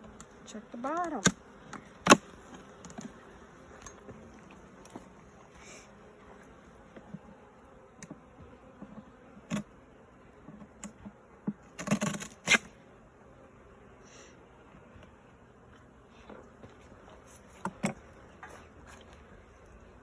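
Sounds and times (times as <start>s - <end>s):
wooden hive parts knocking: 0.0s - 5.2s
honey bees buzzing: 0.0s - 20.0s.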